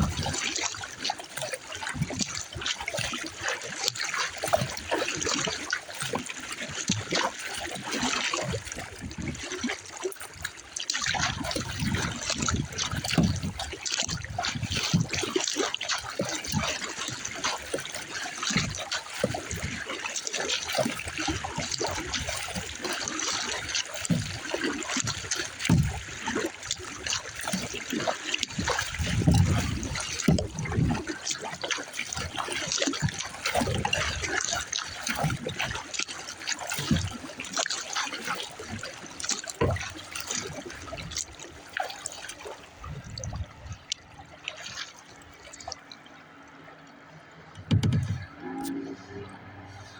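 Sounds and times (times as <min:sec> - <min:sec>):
wind rumble on microphone: 0:00.0 - 0:00.4, 0:28.6 - 0:31.1, 0:42.7 - 0:44.3
water splashing around kayak: 0:00.0 - 0:49.9.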